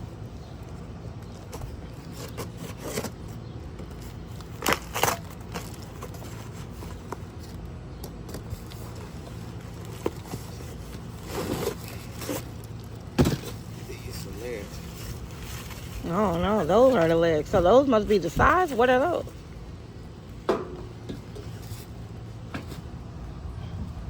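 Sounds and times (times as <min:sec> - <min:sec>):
steady low hum: 0:00.0 - 0:24.0
cardboard packaging rustling: 0:00.7 - 0:19.6.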